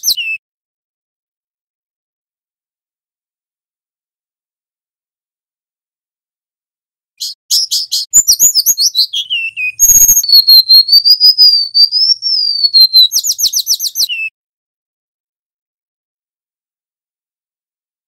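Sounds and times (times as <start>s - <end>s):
bird singing high chirps and whistles: 0.0s - 0.4s, 7.2s - 14.3s.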